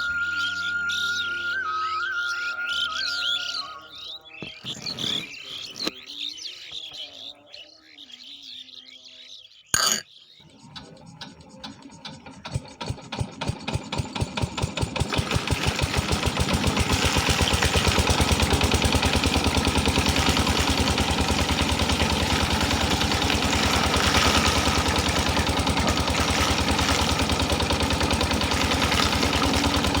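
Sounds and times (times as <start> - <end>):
engine picking up speed: 10.7 - 30.0.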